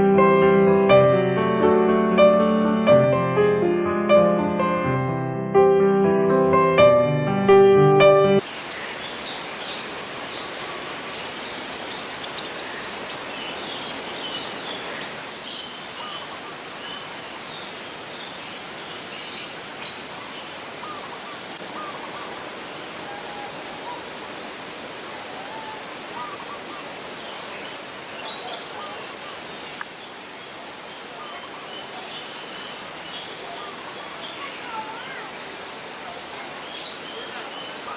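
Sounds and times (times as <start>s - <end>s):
birds chirping: 8.4s - 24.2s, 25.2s - 37.9s
flowing water rushing: 8.4s - 37.9s.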